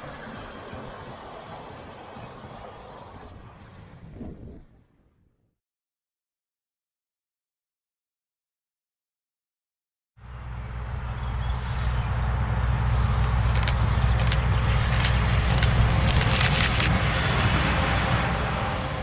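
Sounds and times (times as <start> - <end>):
train rumbling past: 0.0 - 4.5, 10.2 - 19.0.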